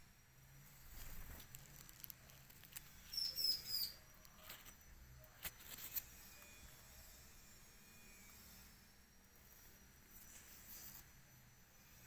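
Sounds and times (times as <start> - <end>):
bird high chirps: 2.8 - 4.2.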